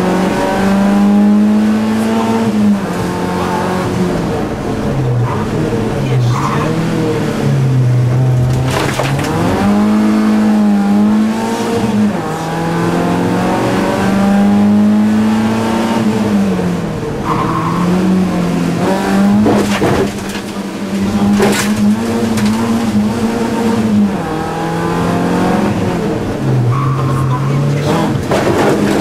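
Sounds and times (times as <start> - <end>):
car engine revving: 0.0 - 29.0
sharp knocks: 28.1 - 29.0.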